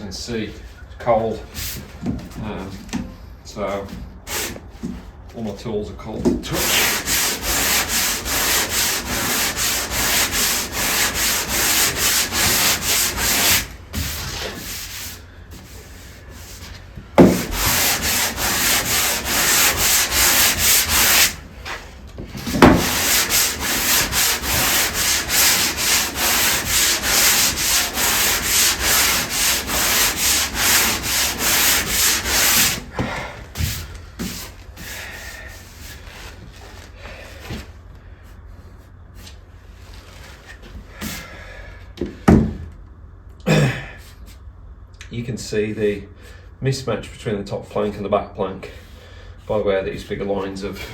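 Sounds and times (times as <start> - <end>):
sandpaper rubbing on wood: 6.5 - 21.4, 22.6 - 32.8.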